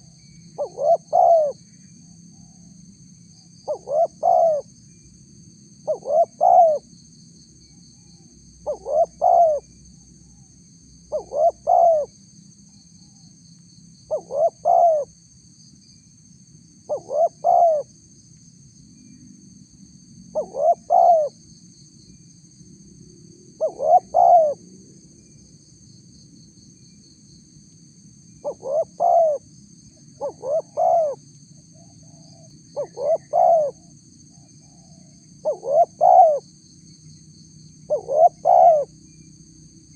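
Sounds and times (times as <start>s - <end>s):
dove cooing: 0.0s - 1.6s, 3.7s - 4.7s, 5.9s - 6.9s, 8.6s - 9.7s, 11.1s - 12.1s, 14.1s - 15.1s, 16.9s - 17.9s, 20.4s - 21.3s, 23.6s - 24.6s, 28.4s - 29.4s, 30.2s - 31.2s, 32.1s - 33.8s, 34.7s - 36.4s, 37.9s - 38.9s.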